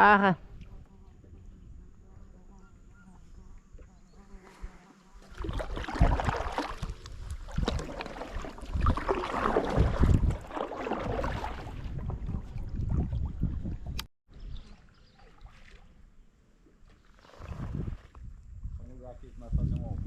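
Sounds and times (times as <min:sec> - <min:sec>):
water splashing around kayak: 0:03.7 - 0:18.4
wind buffeting microphone: 0:05.4 - 0:14.7, 0:17.4 - 0:20.0.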